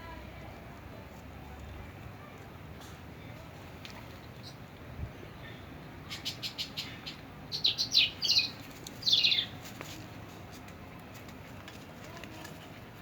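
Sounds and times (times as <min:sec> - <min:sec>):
small birds chirping: 0:04.1 - 0:10.0.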